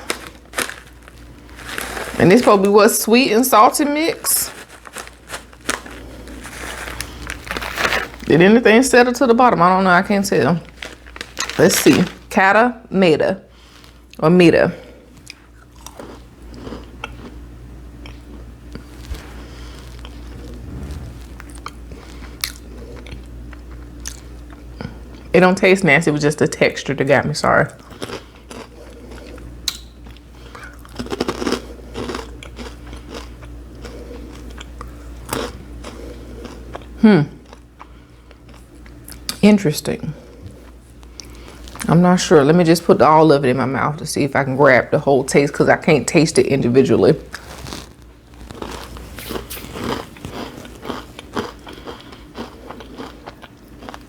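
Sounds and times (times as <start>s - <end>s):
crunchy chewing of snack: 0.0s - 8.3s, 10.6s - 12.3s, 15.1s - 25.3s, 27.7s - 39.4s, 47.2s - 54.0s.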